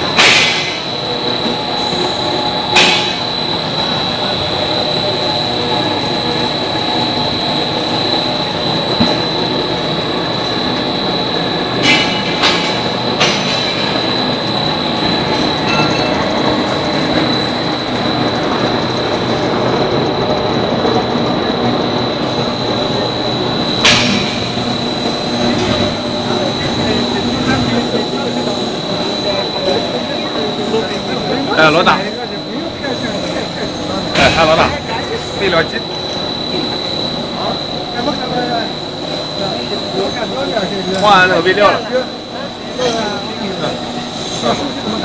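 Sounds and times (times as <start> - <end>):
machine rumbling and whining: 0.0 - 31.5
sharp metal clanks: 11.8 - 14.3, 15.3 - 16.6, 23.7 - 26.9.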